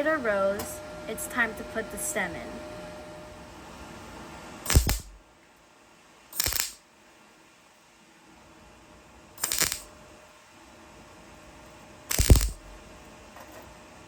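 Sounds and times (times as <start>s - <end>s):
mig tack welds: 4.6s - 5.2s, 6.3s - 6.8s, 9.4s - 9.9s, 12.1s - 12.9s.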